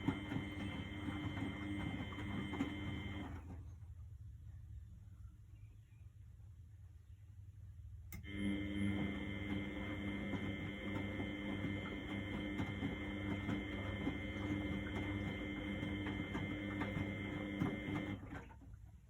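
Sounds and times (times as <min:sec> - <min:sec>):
washing machine motor whine: 0:00.0 - 0:03.7, 0:08.1 - 0:18.7.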